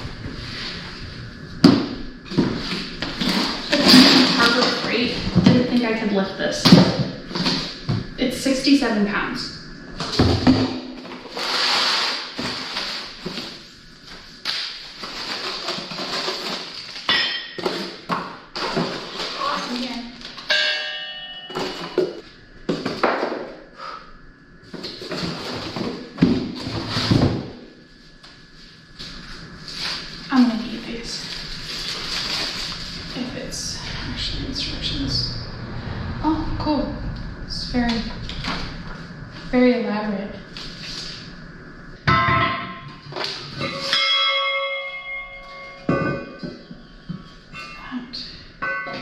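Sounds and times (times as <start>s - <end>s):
metal parts clanking and ringing: 20.4s - 22.2s, 48.6s - 49.0s.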